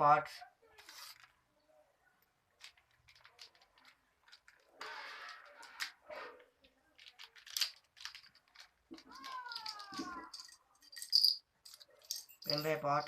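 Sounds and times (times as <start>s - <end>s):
small plastic parts clicking: 2.6s - 12.8s.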